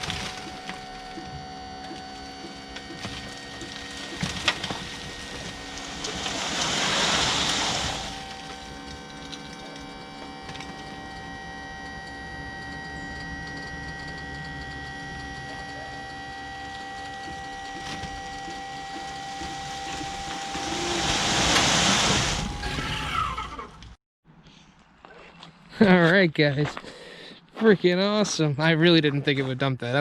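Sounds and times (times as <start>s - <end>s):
hydraulic pump motor whine: 0.0s - 24.0s
rushing noise: 4.9s - 8.5s.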